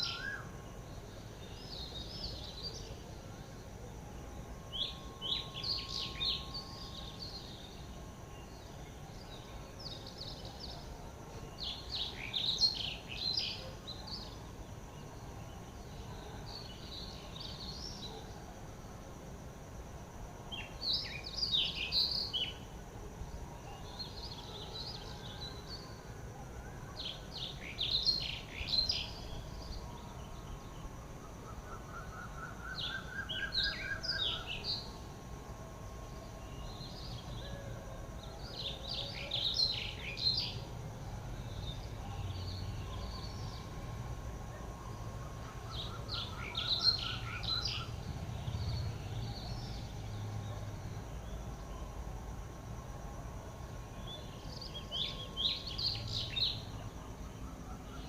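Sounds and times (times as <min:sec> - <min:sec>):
wild birds singing: 0:00.0 - 0:19.6, 0:20.2 - 0:58.0
steady outdoor hiss: 0:00.0 - 0:58.0.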